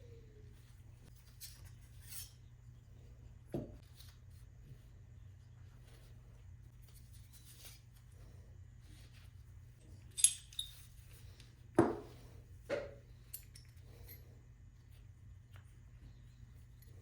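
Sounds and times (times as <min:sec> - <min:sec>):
steady low hum: 0:00.0 - 0:17.0
metal clink: 0:10.1 - 0:10.9.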